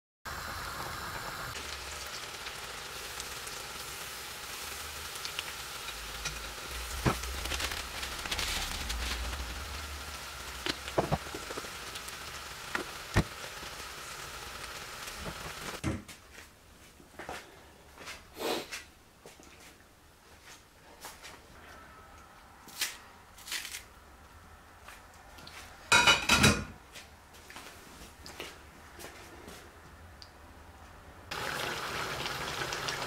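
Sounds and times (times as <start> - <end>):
meat frying in hot oil: 0.3 - 15.8, 31.3 - 33.0.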